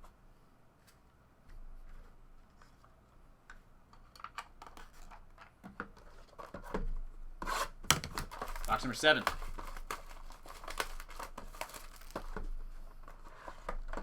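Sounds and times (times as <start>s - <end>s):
cards clicking and tapping: 7.9s - 12.5s
packaging rustle: 7.9s - 14.0s.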